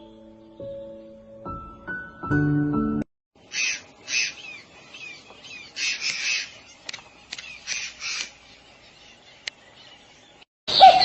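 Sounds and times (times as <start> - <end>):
bird squawking: 3.5 - 9.4, 10.7 - 11.0
sharp clicks: 5.9 - 8.4.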